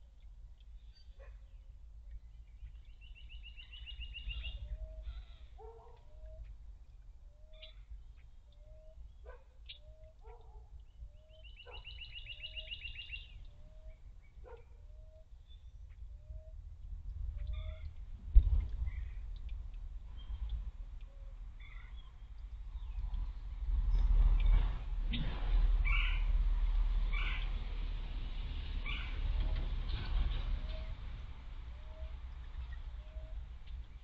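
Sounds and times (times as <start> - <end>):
faint low rumble: 0.0 - 34.0
bird trills: 2.6 - 6.6, 7.3 - 10.2, 10.8 - 16.6, 17.4 - 18.0
scattered clicks: 17.8 - 21.4.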